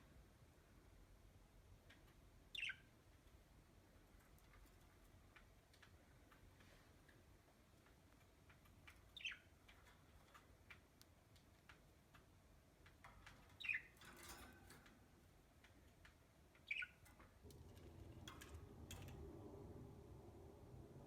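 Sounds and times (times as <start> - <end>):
faint scattered clicks: 4.0 - 19.5
low steady hum: 11.3 - 21.0.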